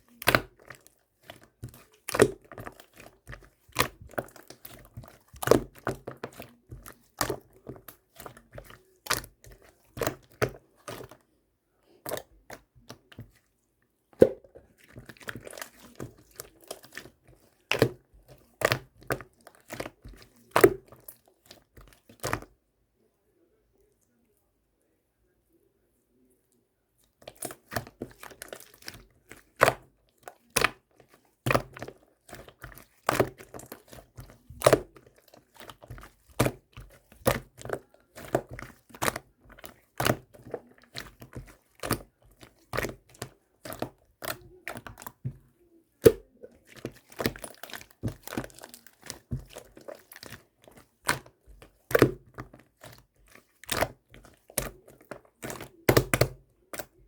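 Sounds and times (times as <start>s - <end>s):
slime popping and crackling: 46.0s - 56.9s.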